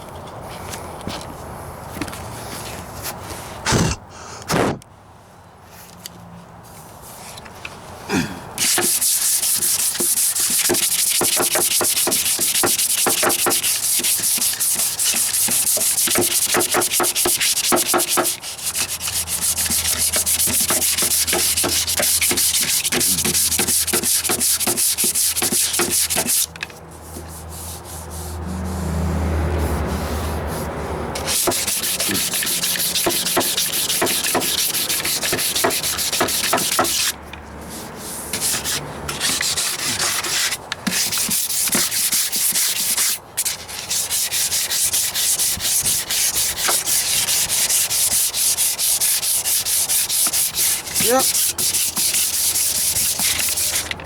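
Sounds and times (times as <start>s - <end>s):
sandpaper scrubbing back and forth: 8.6s - 54.0s.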